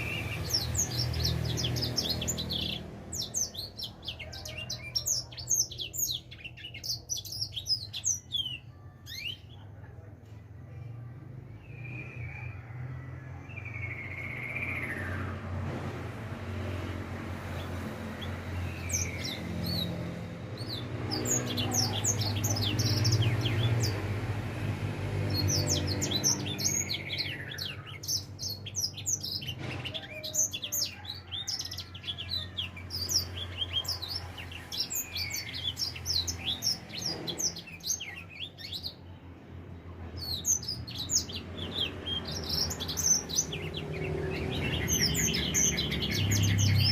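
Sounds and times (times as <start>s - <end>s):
finch singing: 0.0s - 9.7s, 17.6s - 24.3s, 25.2s - 39.1s, 40.2s - 46.9s.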